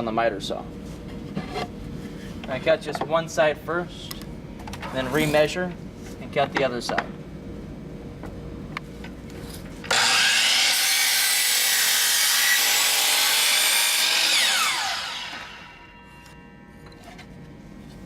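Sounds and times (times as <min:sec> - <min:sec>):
miter saw cutting wood: 0:09.9 - 0:16.2.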